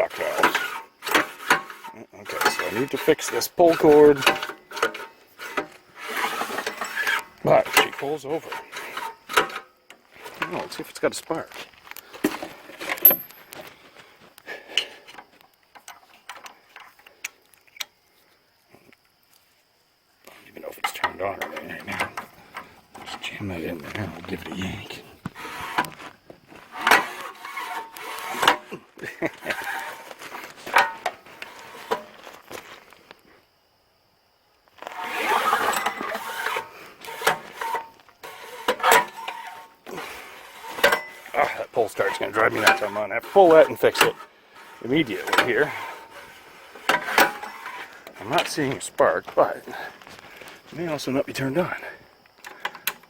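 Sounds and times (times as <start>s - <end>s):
recoil pull starter scraping: 0.0s - 17.1s, 20.8s - 32.8s, 34.8s - 53.0s
small parts and tools clicking: 11.8s - 13.7s.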